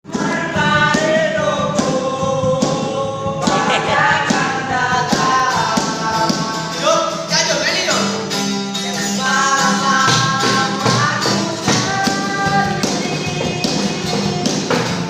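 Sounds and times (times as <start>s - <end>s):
person singing: 0.1s - 7.1s, 8.9s - 15.0s
backing music: 0.2s - 15.0s
steady percussion beat: 3.4s - 6.8s.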